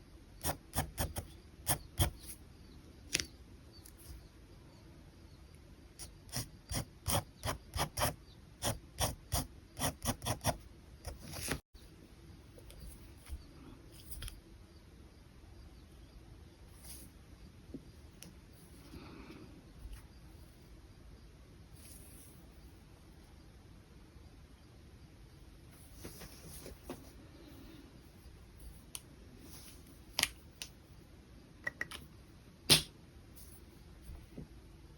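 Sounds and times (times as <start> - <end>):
pen scratching on paper: 0.4 - 2.4, 6.0 - 11.3.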